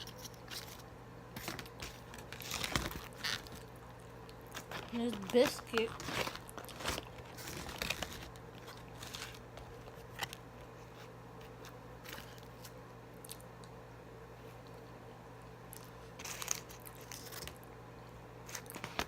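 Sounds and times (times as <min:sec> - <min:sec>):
steady low hum: 0:00.0 - 0:19.0
eating crunches and mouth clicks: 0:01.4 - 0:10.4, 0:11.6 - 0:13.8, 0:15.7 - 0:17.6.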